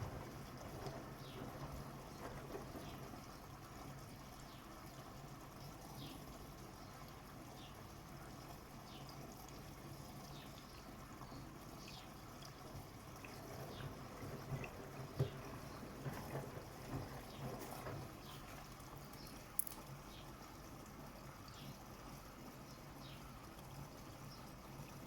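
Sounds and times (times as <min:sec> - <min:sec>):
washing machine knock: 0:00.0 - 0:03.2, 0:13.4 - 0:18.4
washing machine low hum: 0:00.0 - 0:25.0
water splashing in washing machine: 0:00.0 - 0:25.0.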